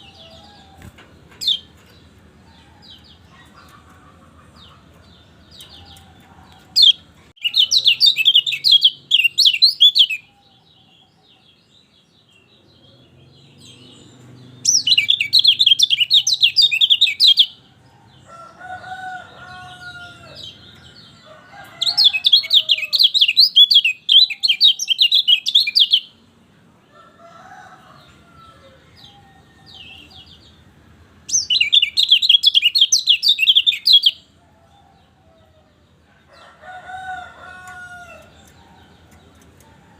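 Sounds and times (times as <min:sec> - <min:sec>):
bird twittering: 0:14.6 - 0:17.6, 0:31.3 - 0:34.2.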